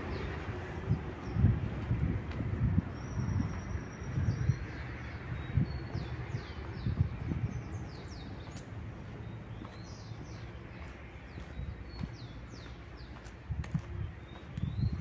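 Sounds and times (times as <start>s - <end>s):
low rumbling microphone bumps: 0.0s - 10.4s, 13.5s - 15.0s.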